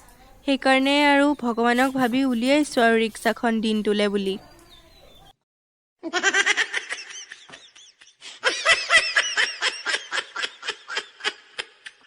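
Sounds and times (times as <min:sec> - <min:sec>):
high-pitched laughter: 0:06.0 - 0:12.0.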